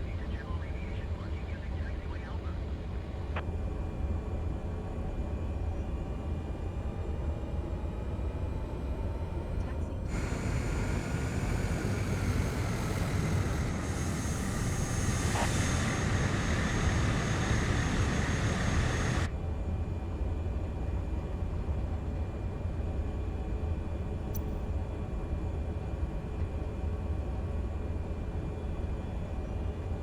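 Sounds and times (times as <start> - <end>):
turboprop engine running: 0.0 - 30.0
thin high whine: 10.1 - 19.3.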